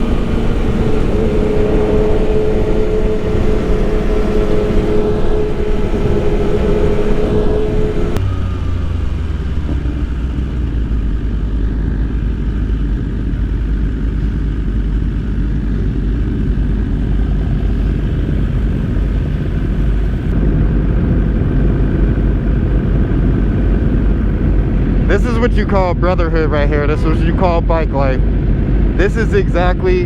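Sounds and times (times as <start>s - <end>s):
motorcycle engine rumble: 0.0s - 30.0s
steady higher tone: 0.0s - 30.0s.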